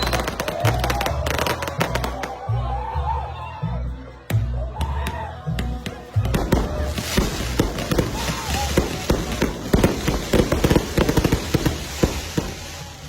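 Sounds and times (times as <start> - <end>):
fireworks bangs and crackles: 0.0 - 2.5, 5.6 - 13.0
music: 0.0 - 13.0.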